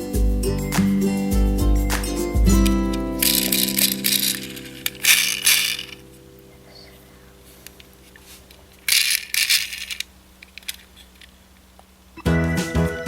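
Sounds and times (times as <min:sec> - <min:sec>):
faint steady hum: 0:00.0 - 0:12.9
tone: 0:00.8 - 0:05.2
rattling and clattering: 0:01.9 - 0:06.2, 0:07.6 - 0:11.5.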